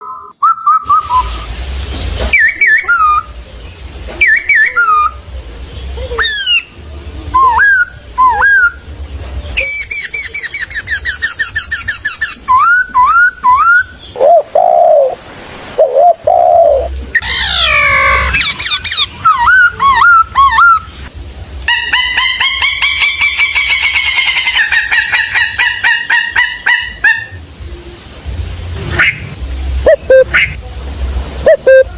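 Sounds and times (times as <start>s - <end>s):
birds whistling and trilling: 0.0s - 21.1s, 31.4s - 31.9s.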